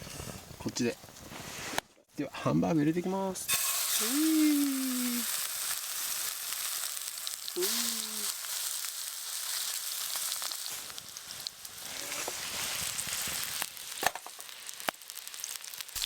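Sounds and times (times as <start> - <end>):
patties sizzling in frying pan: 3.5 - 16.0.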